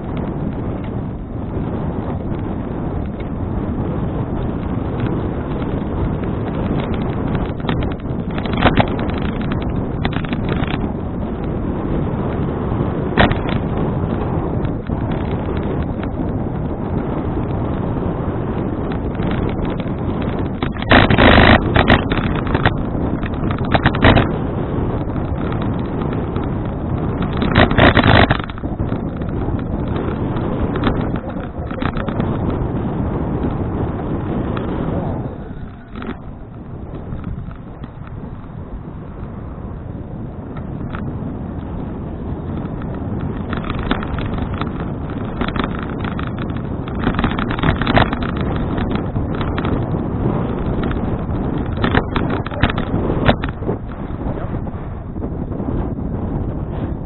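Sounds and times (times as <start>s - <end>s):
wind buffeting microphone: 0.0s - 57.0s
rattling clicks: 6.5s - 11.5s, 13.2s - 16.3s, 18.8s - 24.4s, 25.0s - 38.6s, 42.4s - 54.1s.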